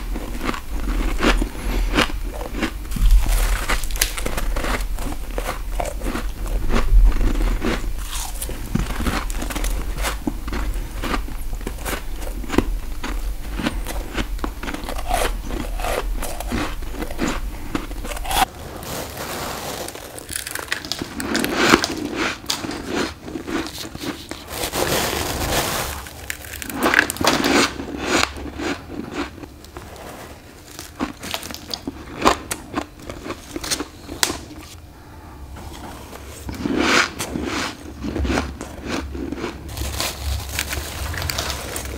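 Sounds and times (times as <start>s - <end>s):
biting and crunching ice: 0.0s - 18.5s, 19.1s - 29.5s, 36.5s - 41.9s
low hum: 0.0s - 18.7s, 34.6s - 36.7s.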